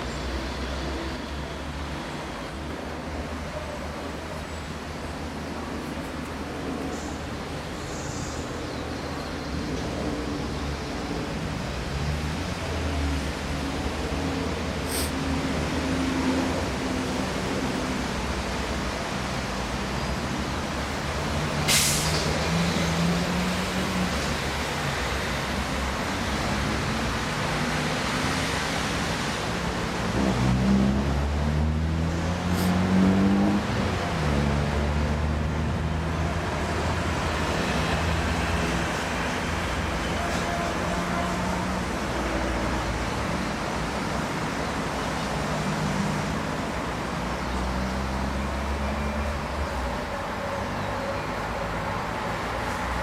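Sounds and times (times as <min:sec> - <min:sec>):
diesel locomotive engine drone: 0:00.0 - 0:53.0
air hiss: 0:14.8 - 0:15.2, 0:21.6 - 0:22.4.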